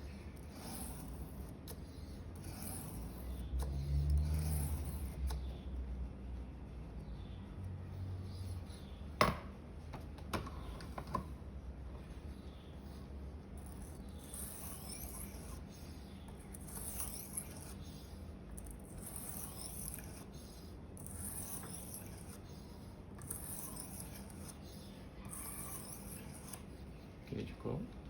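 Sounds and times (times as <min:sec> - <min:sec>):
knife scraping on whetstone: 0:00.1 - 0:05.5, 0:13.6 - 0:27.0.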